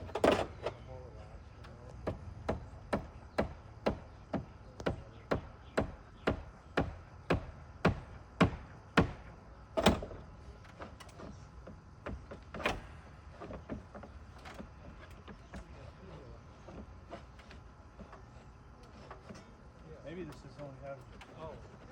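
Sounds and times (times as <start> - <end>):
hammer knocks: 2.0 - 9.3.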